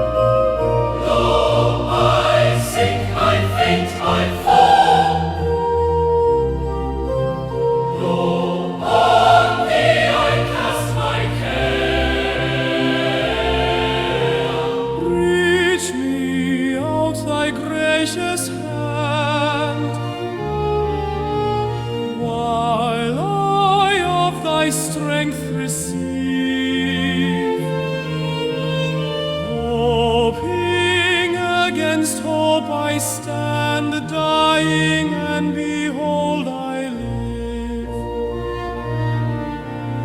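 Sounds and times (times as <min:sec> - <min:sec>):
choir singing a hymn: 0:00.0 - 0:06.2, 0:07.5 - 0:20.4.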